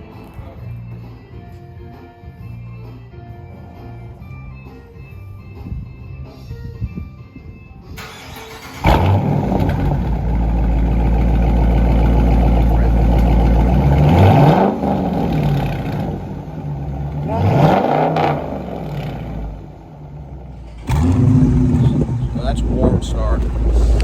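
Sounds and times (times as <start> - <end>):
car engine revving: 8.0 - 24.0
car engine starting and idling: 8.0 - 24.0.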